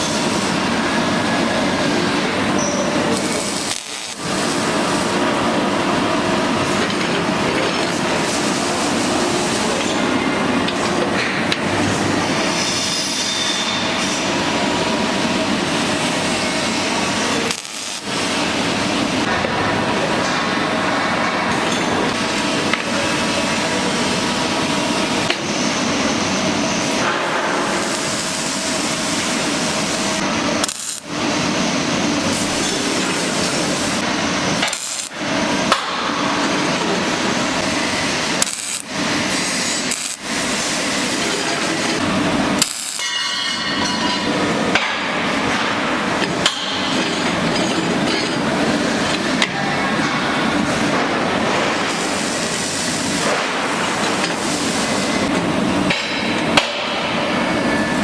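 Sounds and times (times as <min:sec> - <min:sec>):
harsh metalworking hiss: 0:00.0 - 0:06.8, 0:11.9 - 0:19.3, 0:23.0 - 0:45.9, 0:50.6 - 0:55.4.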